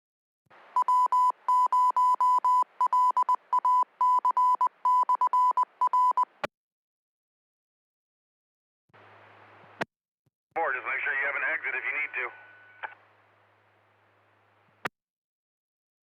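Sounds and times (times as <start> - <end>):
morse code beeps: 0.8 - 6.4
faint radio hiss: 10.6 - 14.9.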